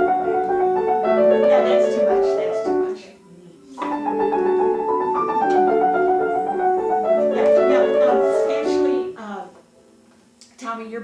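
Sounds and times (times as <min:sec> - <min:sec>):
classical piano passage: 0:00.0 - 0:03.1, 0:03.7 - 0:09.2.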